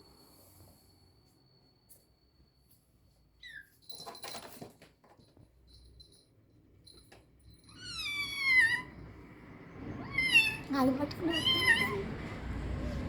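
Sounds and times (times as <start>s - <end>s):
kitten mewing: 10.0s - 12.1s.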